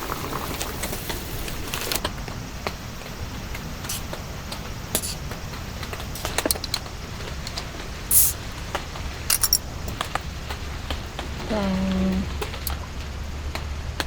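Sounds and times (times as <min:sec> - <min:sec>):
steady rain: 0:00.0 - 0:14.0
short hiss: 0:03.9 - 0:04.1, 0:05.0 - 0:05.3, 0:08.1 - 0:08.4.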